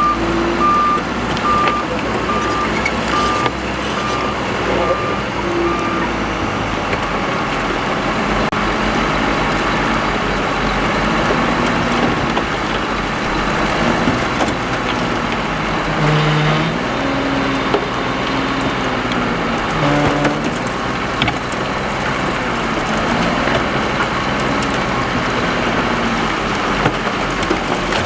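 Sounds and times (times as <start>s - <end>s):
heavy machinery engines under load: 0.0s - 28.0s
rock and dirt clattering: 1.1s - 4.8s.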